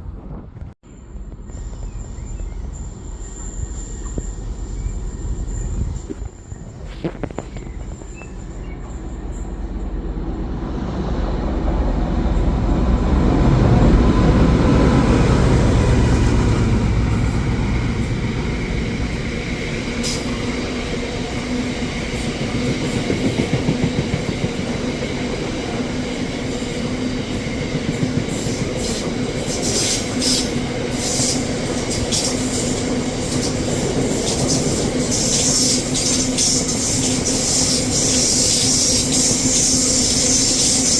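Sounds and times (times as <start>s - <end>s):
train passing: 0.0s - 40.9s
wheels squealing on rail: 0.9s - 10.7s, 12.3s - 40.9s.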